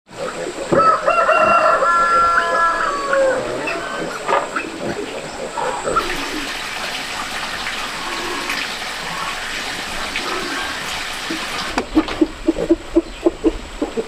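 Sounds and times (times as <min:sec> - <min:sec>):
farm animal calls: 0:00.1 - 0:14.0
running water: 0:00.1 - 0:14.0
rooster crowing: 0:00.7 - 0:04.3.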